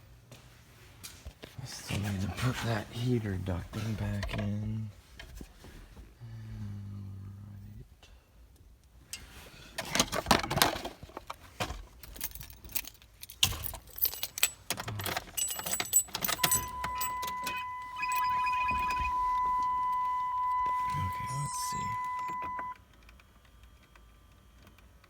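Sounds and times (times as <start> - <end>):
car key jangling on ring: 12.0 - 22.8
high electronic warning tone: 16.4 - 22.8.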